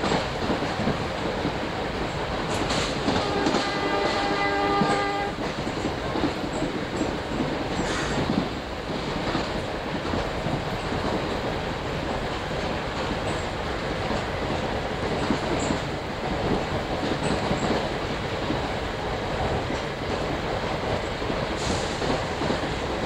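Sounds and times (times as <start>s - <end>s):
train rumble and rattle: 0.0s - 23.0s
train horn: 3.0s - 5.6s.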